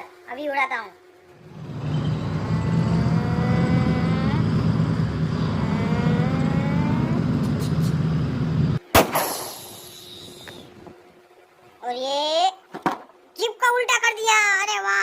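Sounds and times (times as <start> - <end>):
tank engine rumble: 1.3 - 8.8
sharp bang of a shot: 8.9 - 9.7.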